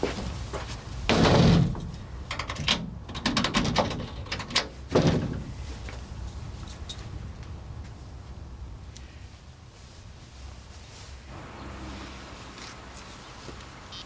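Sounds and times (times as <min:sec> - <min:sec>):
heavy door thud: 0:01.1 - 0:01.9, 0:04.9 - 0:05.5
door clicks and knocks: 0:01.1 - 0:05.4.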